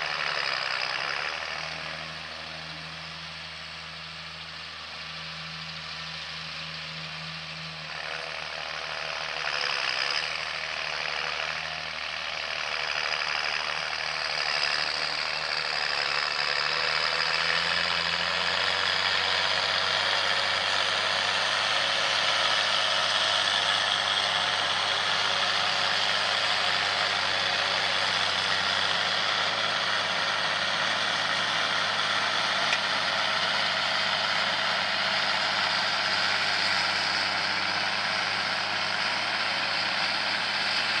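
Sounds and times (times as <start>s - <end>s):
tractor engine running: 0.0s - 41.0s.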